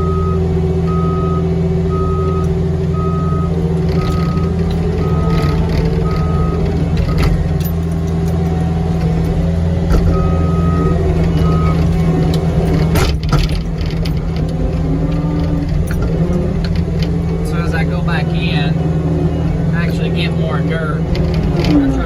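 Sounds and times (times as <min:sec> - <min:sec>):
backup alarm beeping: 0:00.0 - 0:07.3, 0:10.0 - 0:12.7
diesel engine running: 0:00.0 - 0:22.0.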